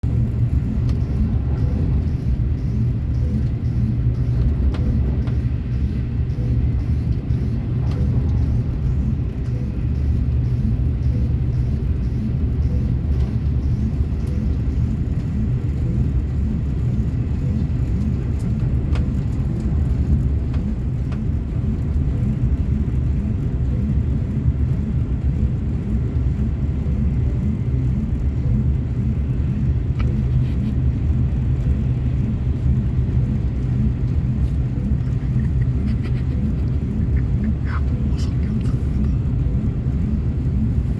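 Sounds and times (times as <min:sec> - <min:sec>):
train rumble: 0:00.0 - 0:40.9
faint regular ticking: 0:00.1 - 0:40.9.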